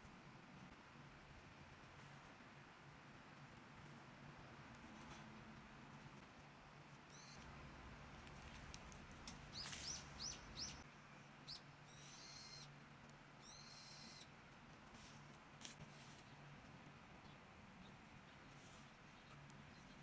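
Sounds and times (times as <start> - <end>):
low steady hum: 0.0 - 20.0
small bird chirping: 7.0 - 7.6, 8.4 - 12.8, 13.4 - 14.4, 17.2 - 20.0.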